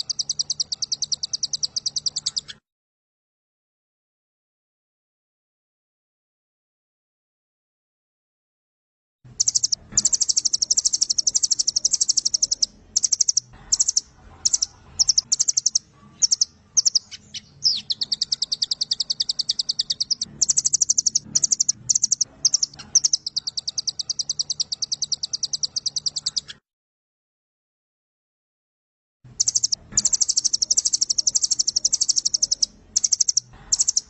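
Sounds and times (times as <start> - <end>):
bird singing rapid trills: 0.0 - 2.6, 9.3 - 26.6, 29.3 - 34.0.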